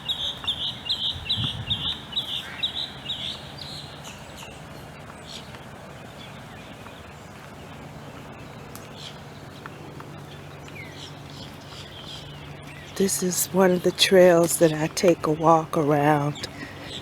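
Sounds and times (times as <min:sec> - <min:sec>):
bird chirping rapidly: 0:00.0 - 0:04.6
outdoor background: 0:00.0 - 0:17.0.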